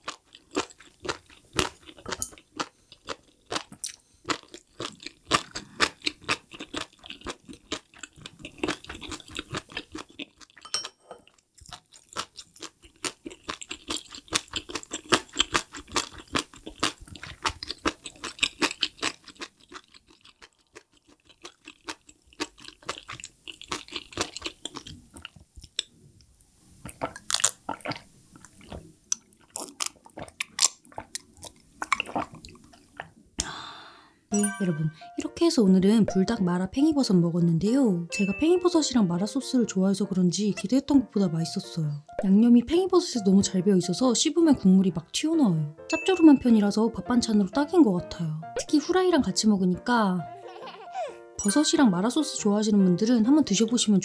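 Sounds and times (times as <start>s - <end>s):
wet chewing and crunching: 0.0s - 26.0s, 26.8s - 33.2s
gulping a drink: 31.8s - 33.1s.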